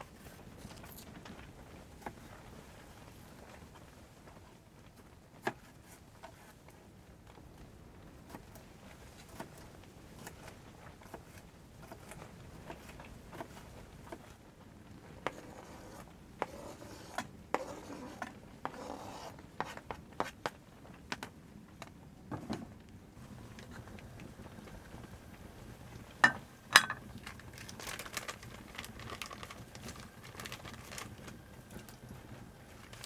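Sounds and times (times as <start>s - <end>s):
rustling and scraping objects: 8.2s - 21.0s, 22.3s - 33.0s.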